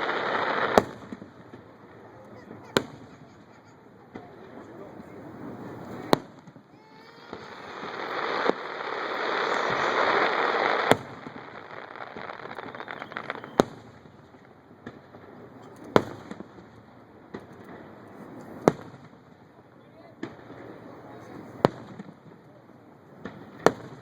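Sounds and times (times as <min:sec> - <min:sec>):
firework hissing: 0:00.0 - 0:01.1, 0:05.4 - 0:13.8
small firework pops: 0:00.0 - 0:04.6, 0:05.7 - 0:24.0
firework bangs: 0:00.0 - 0:19.5, 0:20.2 - 0:22.4, 0:23.2 - 0:24.0.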